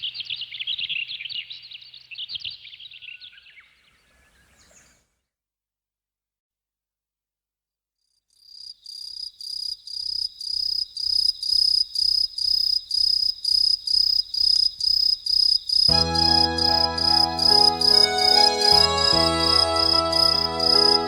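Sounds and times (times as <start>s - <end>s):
cricket chirping: 8.4s - 16.0s
music with bass and keyboard: 15.9s - 21.0s.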